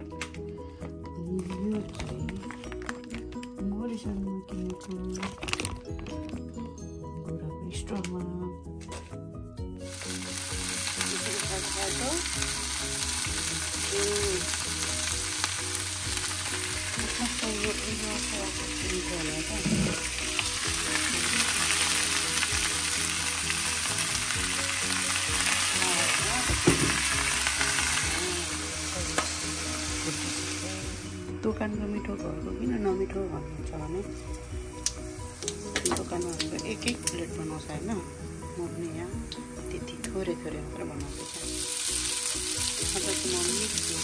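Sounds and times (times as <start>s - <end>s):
noodles sizzling in a pan: 9.8s - 31.2s, 34.2s - 44.0s.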